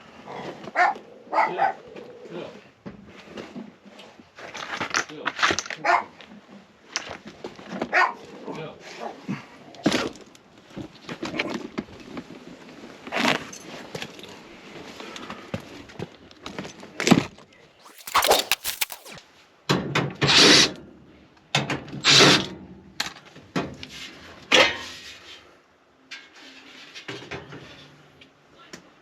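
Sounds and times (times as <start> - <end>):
short rustling bursts: 17.8 - 19.2.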